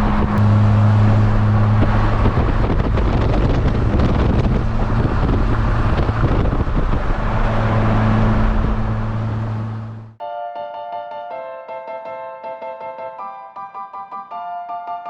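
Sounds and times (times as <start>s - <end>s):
car engine hum: 0.0s - 10.2s
wind buffeting microphone: 0.0s - 10.2s
piano-like music: 10.1s - 15.0s.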